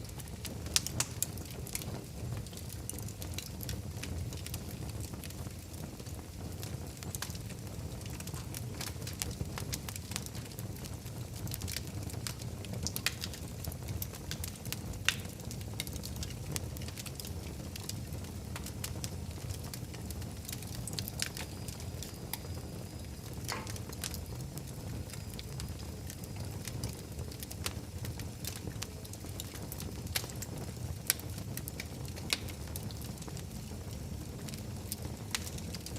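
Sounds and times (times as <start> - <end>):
low rumble of flame: 0.0 - 35.9
sharp fire pops: 0.0 - 35.9
wood fire crackling: 0.0 - 35.9.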